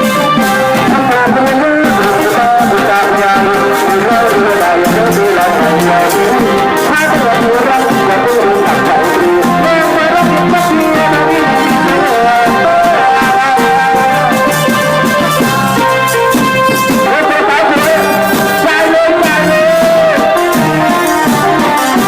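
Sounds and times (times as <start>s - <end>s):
steady drum beat: 0.0s - 22.0s
trumpets and trombones: 0.0s - 22.0s.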